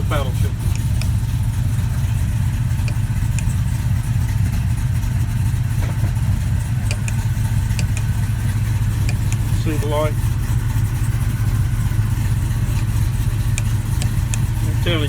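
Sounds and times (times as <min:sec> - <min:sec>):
pickup engine idling: 0:00.0 - 0:15.0
faint clicks: 0:00.6 - 0:01.3, 0:02.0 - 0:04.7, 0:05.8 - 0:09.9, 0:13.3 - 0:14.7.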